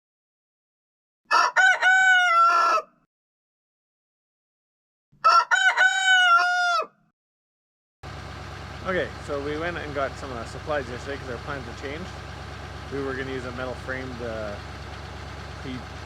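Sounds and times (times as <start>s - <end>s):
rooster crowing: 1.3s - 3.0s, 5.2s - 7.0s.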